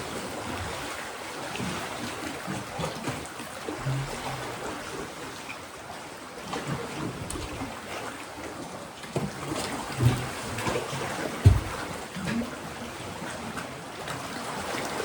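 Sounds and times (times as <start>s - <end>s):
waves splashing against rocks: 9.0s - 15.0s
thuds of surging water: 9.5s - 12.5s.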